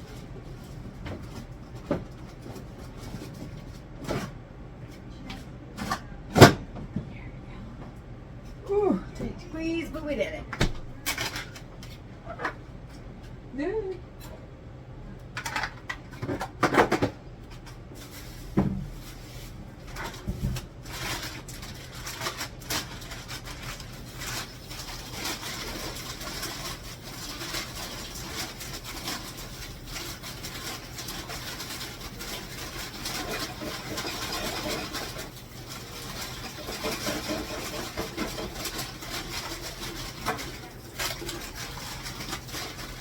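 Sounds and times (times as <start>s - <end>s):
knocks and clatter in a cupboard: 0.9s - 4.4s, 15.4s - 17.2s, 19.9s - 20.7s.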